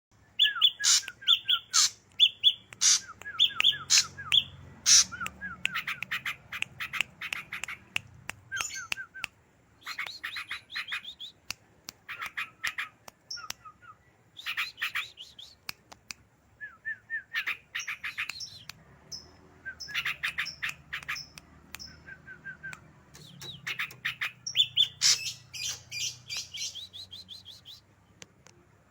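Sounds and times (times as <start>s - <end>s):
bird singing whistled notes: 0.3s - 6.0s, 13.3s - 15.6s, 16.6s - 27.9s.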